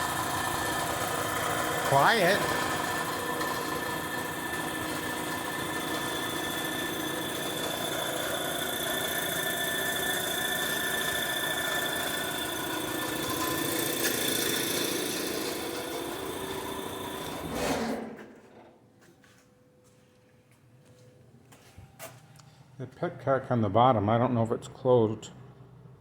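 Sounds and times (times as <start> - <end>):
air compressor motor hum: 0.0 - 19.4.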